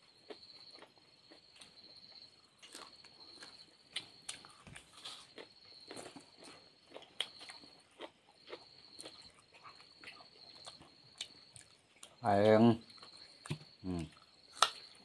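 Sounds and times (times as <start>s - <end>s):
insects trilling: 0.0s - 15.0s
chewing and lip-smacking: 2.6s - 12.2s.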